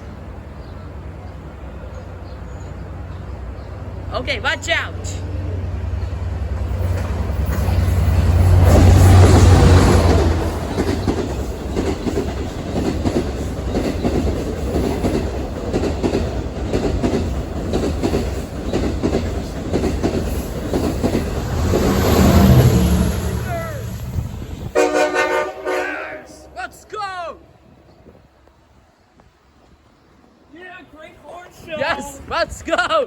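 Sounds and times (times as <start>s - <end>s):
train passing with rumble: 0.0s - 32.7s
wheels clacking over rail joints: 6.1s - 22.6s.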